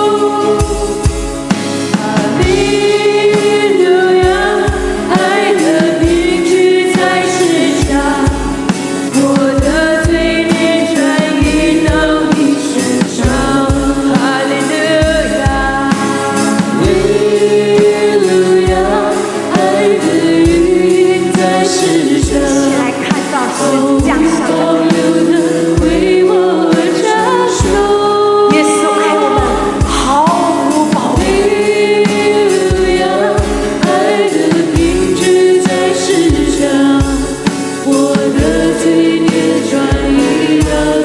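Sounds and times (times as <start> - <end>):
band accompaniment: 0.0 - 41.0
voices singing worship song: 0.0 - 41.0
low drum beat: 22.3 - 26.2.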